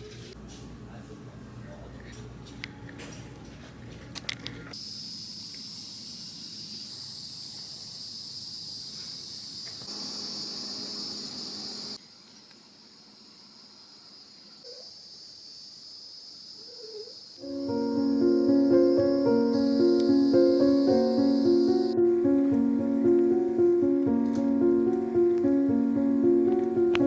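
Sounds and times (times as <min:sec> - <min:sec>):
insects chirping chorus: 0:04.8 - 0:12.0, 0:12.6 - 0:27.0.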